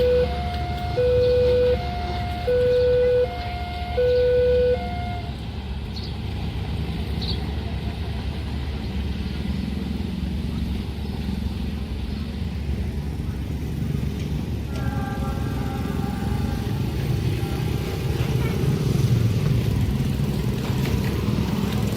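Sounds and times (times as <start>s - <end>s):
steady multi-pitched tone: 0.0s - 5.3s
two-tone crossing alarm: 0.0s - 5.4s
road traffic rumble: 0.0s - 21.9s.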